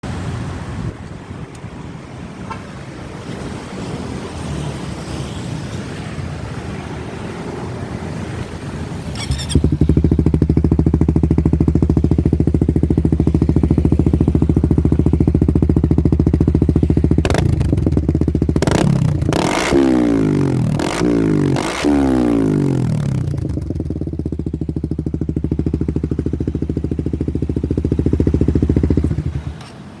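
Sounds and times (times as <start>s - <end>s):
wind noise on microphone: 0.0s - 7.0s
motorcycle idling: 5.0s - 30.0s.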